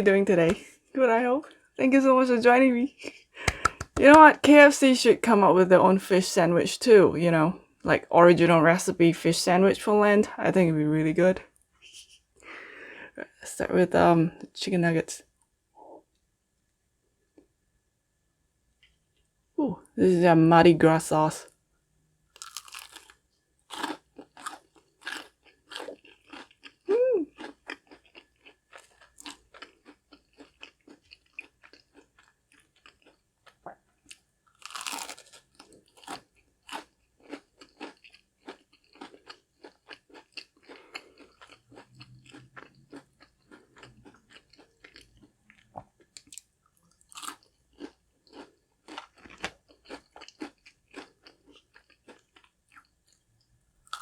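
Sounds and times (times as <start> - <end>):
crunchy chewing: 22.3 - 53.2.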